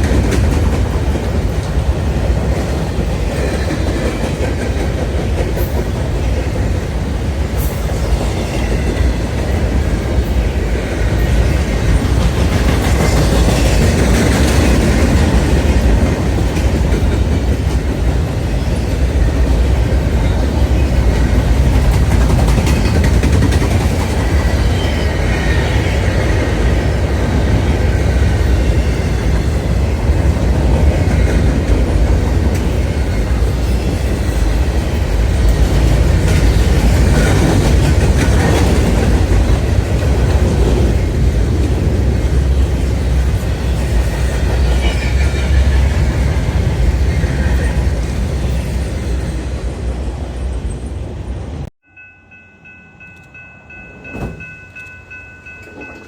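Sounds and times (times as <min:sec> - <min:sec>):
train cars rumbling past: 0:00.0 - 0:56.0
wheels clattering over rail joints: 0:11.0 - 0:48.2.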